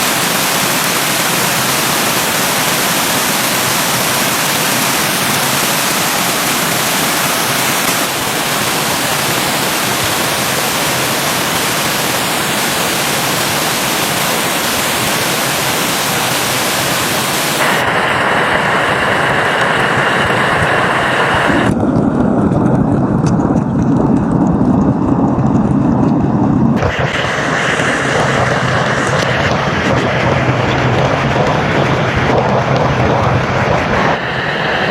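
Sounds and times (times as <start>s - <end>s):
stream water rushing: 0.0s - 21.7s, 26.8s - 34.9s.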